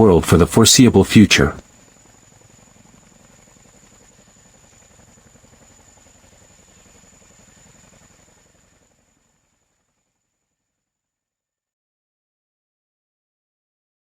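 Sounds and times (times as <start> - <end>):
helicopter engine and rotor: 0.0 - 9.6.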